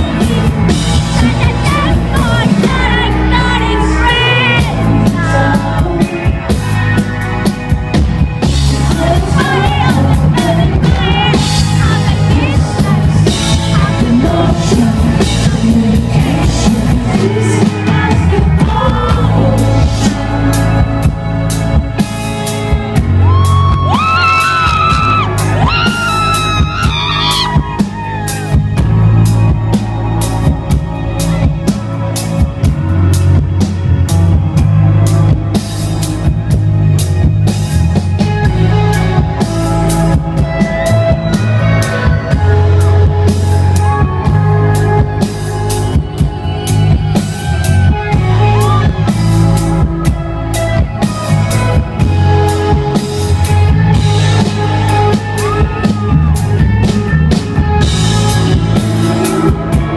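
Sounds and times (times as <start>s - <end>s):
live rock band: 0.0s - 59.9s
crowd yelling: 22.2s - 36.5s, 38.8s - 59.9s.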